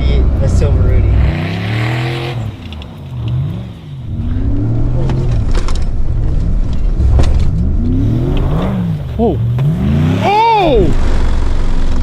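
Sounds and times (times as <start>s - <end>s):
pickup truck engine revving: 0.0s - 12.0s.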